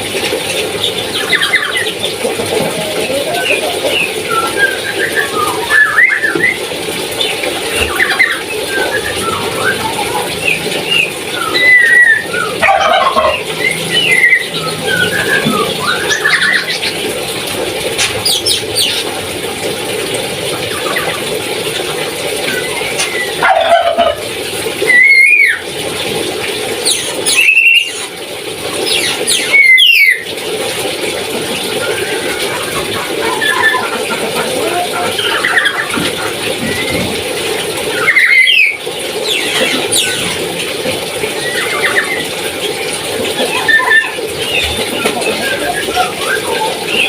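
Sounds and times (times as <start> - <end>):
parrot chirping and whistling: 3.3 - 6.6, 7.9 - 16.9, 24.9 - 25.6, 26.8 - 28.1, 28.9 - 30.2, 33.2 - 34.0, 37.9 - 40.2, 43.5 - 47.0.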